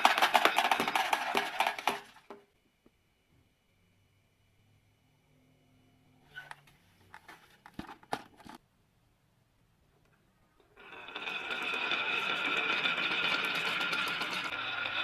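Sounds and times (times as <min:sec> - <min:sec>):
toy motor whirring: 0:00.0 - 0:02.0, 0:10.8 - 0:15.0
toy pieces clicking: 0:00.0 - 0:02.1.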